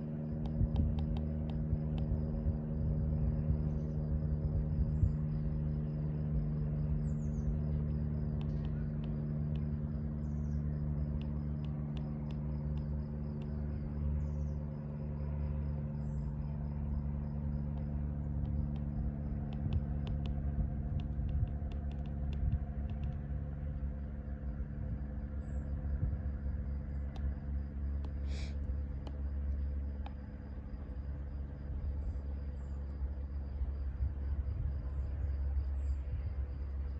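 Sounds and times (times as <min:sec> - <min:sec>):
insect chirping: 0:00.0 - 0:36.9
low mechanical hum: 0:00.0 - 0:36.9
light ticks: 0:00.4 - 0:02.2, 0:08.3 - 0:09.8, 0:11.1 - 0:13.6, 0:17.7 - 0:23.9, 0:28.0 - 0:31.0.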